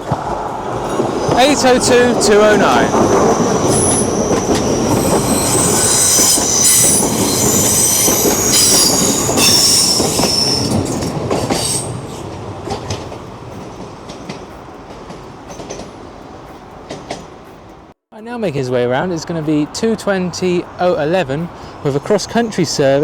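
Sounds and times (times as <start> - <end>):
train rumble: 0.0 - 23.0
wheels clicking on rails: 0.0 - 23.0
wheel flange squeal: 0.7 - 14.7.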